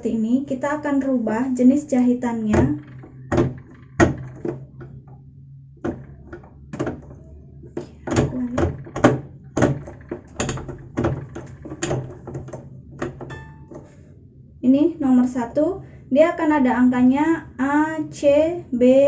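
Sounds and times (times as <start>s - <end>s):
faint low hum: 0.0s - 19.0s
dull thuds: 2.3s - 14.0s.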